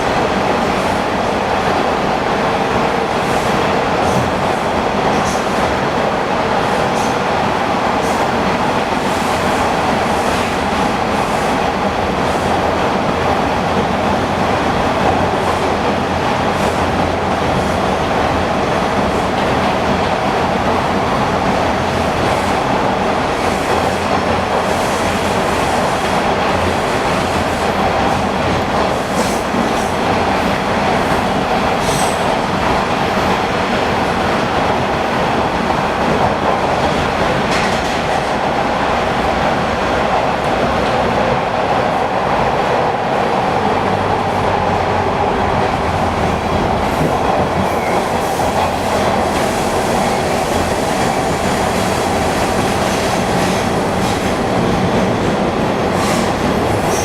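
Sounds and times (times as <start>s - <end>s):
rumble of wheels on rail: 0.0s - 57.0s
clack of rail joints: 2.7s - 5.8s, 8.0s - 38.6s.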